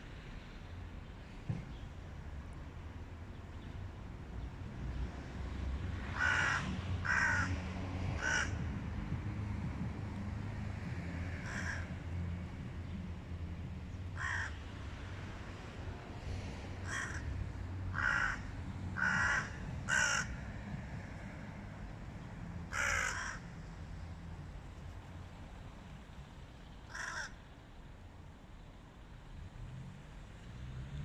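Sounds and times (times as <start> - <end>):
crows cawing: 6.1 - 8.7, 11.4 - 11.9, 14.2 - 14.6, 16.8 - 20.4, 22.7 - 23.5, 26.9 - 27.4.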